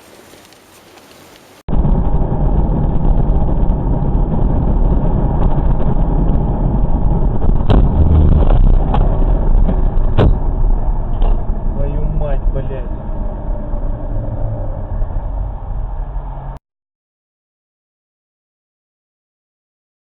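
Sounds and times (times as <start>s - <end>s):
car driving rumble: 1.7s - 16.6s.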